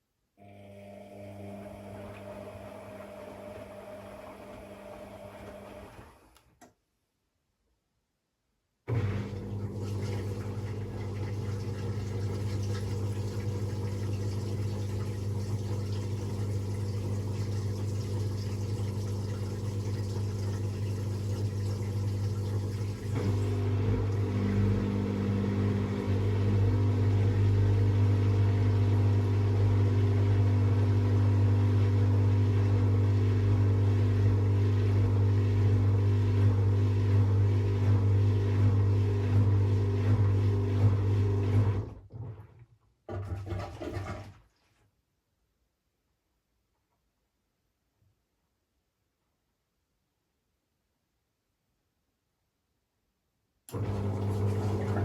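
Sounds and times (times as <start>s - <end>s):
washing machine motor hum: 0.4s - 6.4s, 8.9s - 44.2s, 53.7s - 55.0s.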